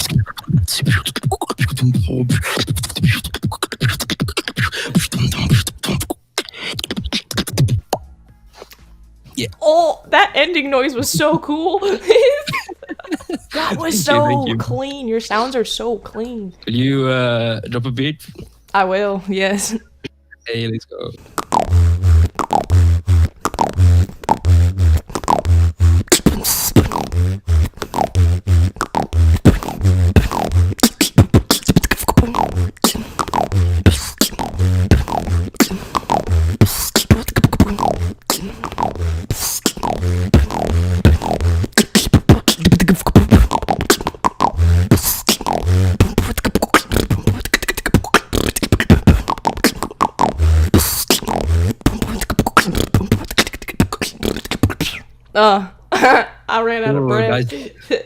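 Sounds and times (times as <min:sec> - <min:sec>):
person beatboxing: 0:00.0 - 0:08.0, 0:13.5 - 0:14.9, 0:17.7 - 0:18.5, 0:21.0 - 0:55.1, 0:56.9 - 0:57.6.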